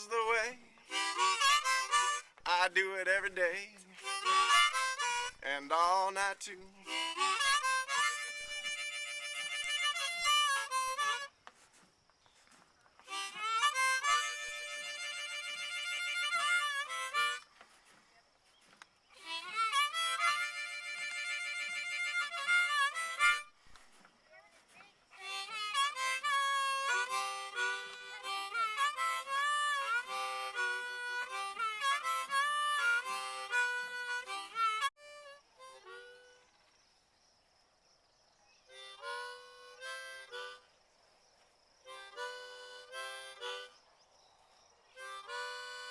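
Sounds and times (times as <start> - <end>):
harmonica music: 0.0 - 11.7, 13.0 - 18.0, 19.1 - 23.6, 25.1 - 36.6, 38.7 - 40.7, 41.8 - 43.8, 44.9 - 45.9.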